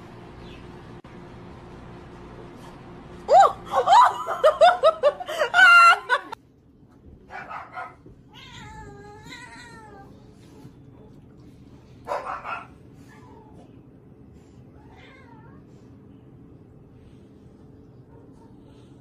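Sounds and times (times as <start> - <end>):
cat meowing: 8.3 - 10.1.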